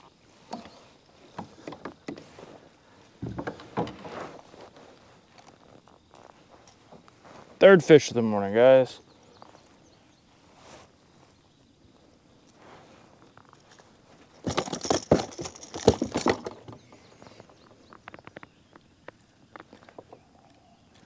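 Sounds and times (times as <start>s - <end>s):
splashing and knocking: 14.4s - 16.8s.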